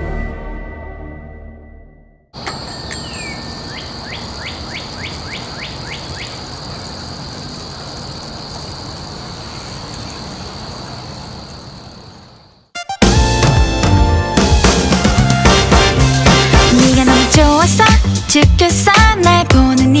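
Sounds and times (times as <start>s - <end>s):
short falling chirps: 2.4s - 6.3s
rushing background ambience: 2.4s - 12.4s
constant high whine: 2.4s - 12.7s.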